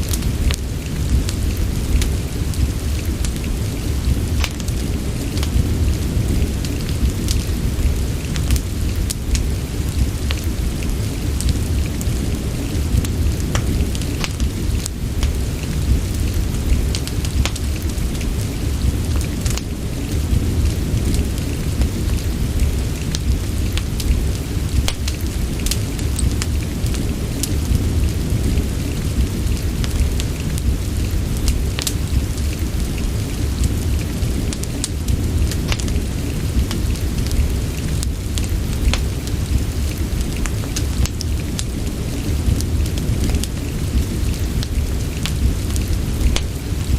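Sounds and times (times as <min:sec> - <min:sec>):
deep low rumble: 0:00.0 - 0:46.9
steady rain: 0:00.0 - 0:46.9
sharp pops and ticks: 0:04.4 - 0:04.8, 0:13.5 - 0:15.4, 0:16.9 - 0:17.6, 0:24.8 - 0:26.4, 0:35.5 - 0:36.0, 0:45.2 - 0:46.6.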